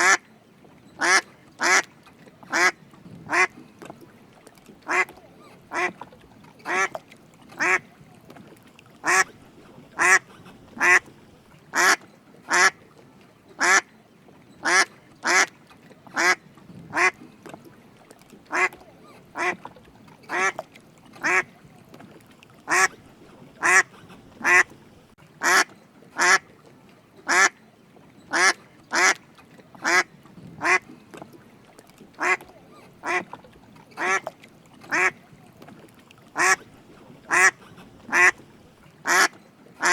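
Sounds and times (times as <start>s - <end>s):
duck quacking: 1.0s - 1.8s, 2.5s - 3.5s, 4.9s - 6.0s, 6.7s - 7.0s, 7.6s - 7.8s, 9.0s - 9.3s, 10.0s - 11.1s, 11.8s - 12.8s, 13.6s - 13.8s, 14.6s - 15.5s, 16.2s - 17.2s, 18.5s - 18.8s, 19.4s - 19.6s, 20.3s - 20.6s, 21.2s - 21.5s, 22.7s - 23.0s, 23.6s - 24.8s, 25.4s - 26.4s, 27.3s - 27.6s, 28.3s - 29.2s, 29.8s - 30.8s, 32.2s - 32.4s, 33.0s - 33.3s, 34.0s - 34.3s, 34.9s - 35.2s, 36.4s - 36.6s, 37.3s - 38.4s, 39.1s - 39.9s.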